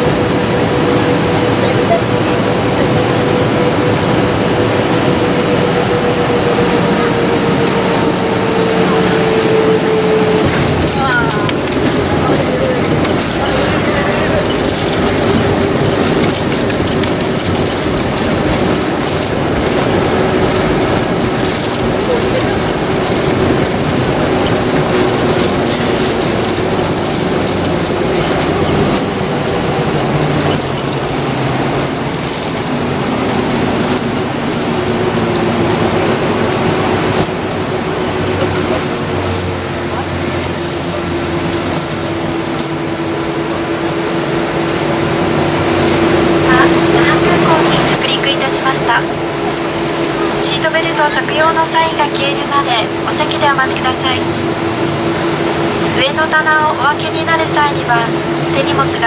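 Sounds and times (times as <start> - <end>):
jet airliner cabin engine hum: 0.0 - 59.0
steady hum: 42.1 - 59.0.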